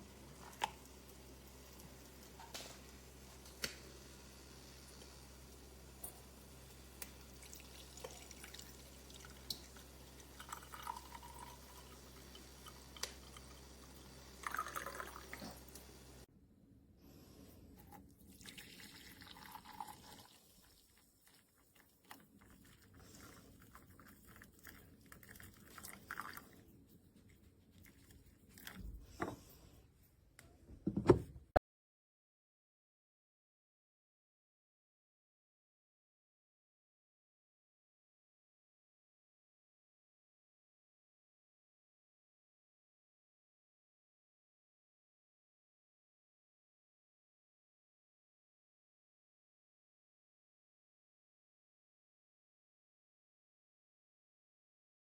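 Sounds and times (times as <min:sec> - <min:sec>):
liquid pouring and dripping: 0:00.0 - 0:03.9, 0:04.9 - 0:16.2, 0:17.8 - 0:26.6.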